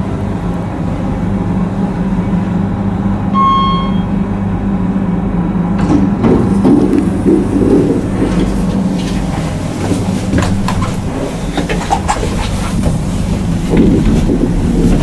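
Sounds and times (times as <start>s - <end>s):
elevator doors sliding open: 0.0s - 15.0s
elevator machine hum: 0.0s - 15.0s
electronic arrival chime: 3.4s - 4.2s.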